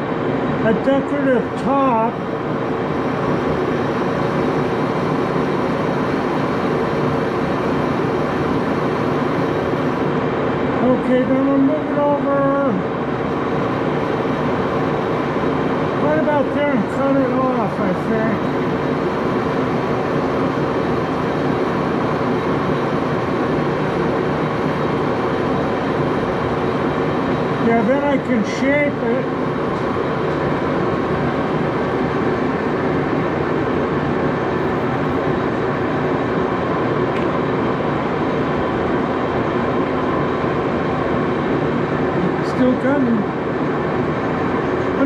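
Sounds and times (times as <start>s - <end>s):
lathe running: 2.1s - 10.1s, 13.3s - 36.9s.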